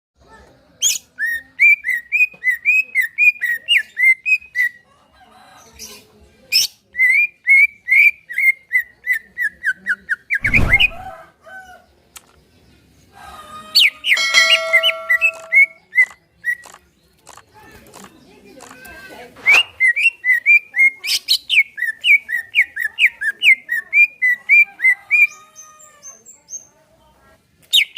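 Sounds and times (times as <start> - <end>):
thump: 10.4 - 11.1.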